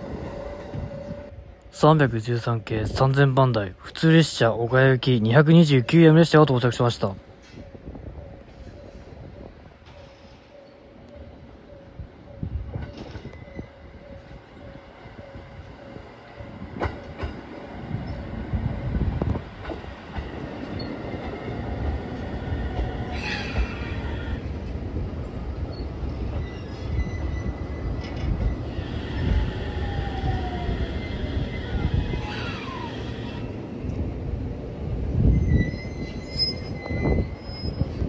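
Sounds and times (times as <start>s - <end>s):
electric train rumbling on rails: 0.0s - 38.0s
train wheel squeal: 8.5s - 16.0s, 20.6s - 21.5s, 22.6s - 24.5s, 25.5s - 33.5s, 35.1s - 38.0s.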